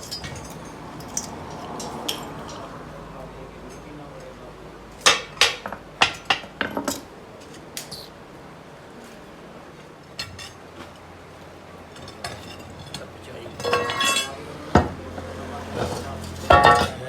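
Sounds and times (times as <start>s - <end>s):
metal objects clinking together: 0.0s - 2.7s, 11.9s - 14.9s, 15.8s - 17.0s.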